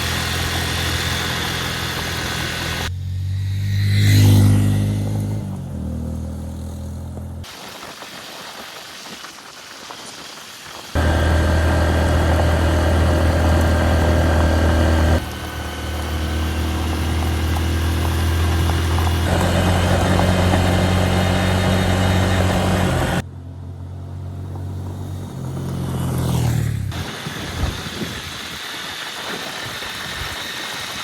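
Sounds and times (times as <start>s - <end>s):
motorcycle engine running: 0.0s - 7.4s, 11.0s - 27.9s.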